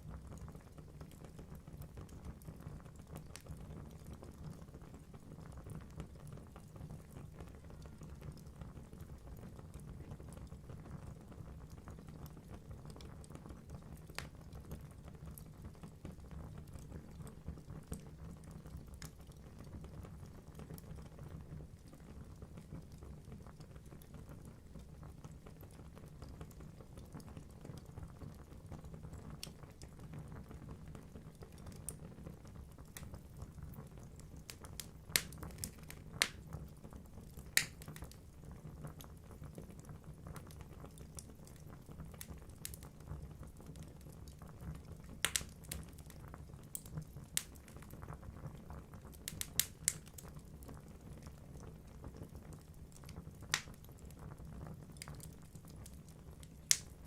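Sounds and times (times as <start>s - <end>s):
logs crackling: 35.1s - 36.4s, 37.6s - 37.9s, 45.2s - 45.6s, 56.7s - 57.0s
loud fire pops: 35.1s - 36.5s, 37.5s - 38.0s, 45.2s - 45.8s, 56.6s - 57.0s
fire flames rumbling: 40.5s - 57.0s.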